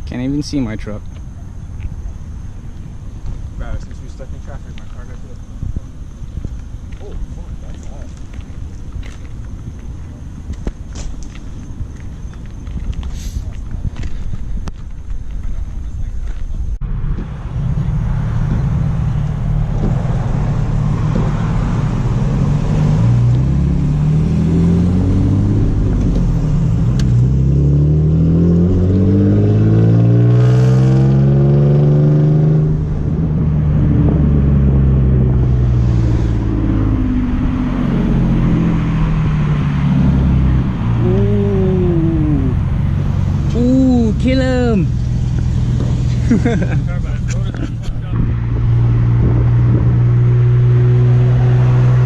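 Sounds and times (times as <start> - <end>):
car engine accelerating hard: 16.8 - 52.0.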